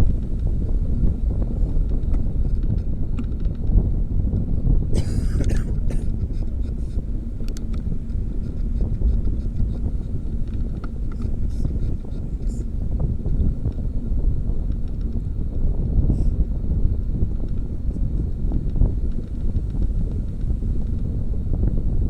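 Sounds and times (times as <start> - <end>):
wind buffeting microphone: 0.0 - 22.0
light clicks and rattles: 1.5 - 3.8, 5.1 - 13.9, 14.6 - 15.3.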